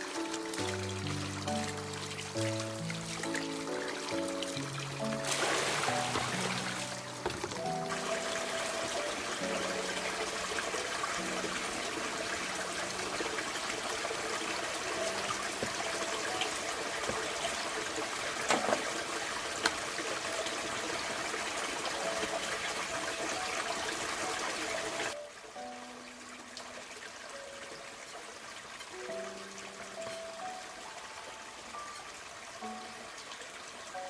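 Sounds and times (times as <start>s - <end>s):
faint background music: 0.0s - 34.0s
water running and trickling: 0.0s - 34.0s.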